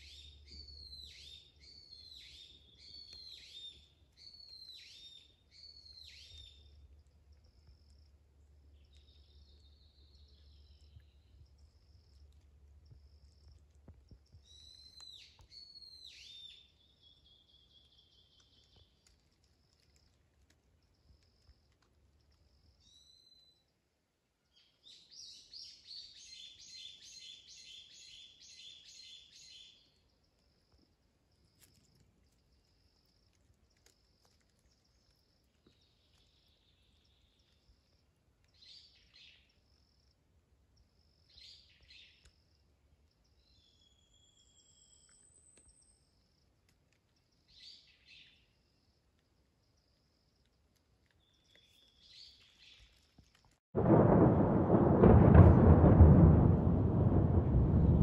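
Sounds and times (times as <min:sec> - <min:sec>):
rapid trilled birdsong: 0:00.0 - 0:19.0
faint high bird chirp: 0:00.0 - 0:20.0, 0:22.4 - 0:23.7, 0:24.5 - 0:40.2, 0:40.8 - 0:53.2.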